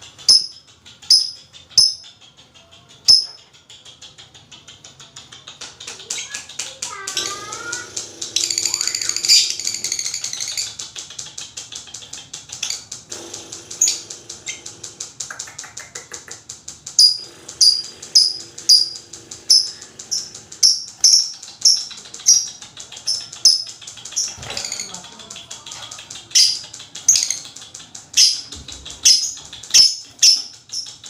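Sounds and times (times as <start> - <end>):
lovebirds chattering: 0.0 - 31.0
sharp high bird chirps: 0.2 - 2.0, 17.0 - 23.7.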